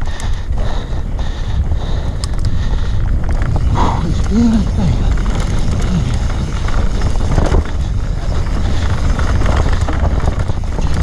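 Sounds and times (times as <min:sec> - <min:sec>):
wind rumble on microphone: 0:00.0 - 0:11.0
motorcycle engine running: 0:02.7 - 0:11.0.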